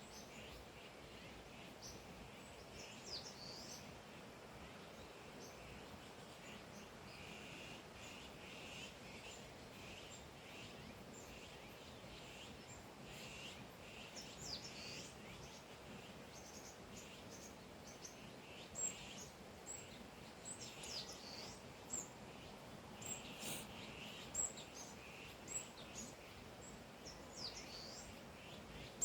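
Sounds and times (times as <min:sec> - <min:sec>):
birds chirping: 0:00.0 - 0:29.0
faint steady hiss: 0:00.0 - 0:29.0.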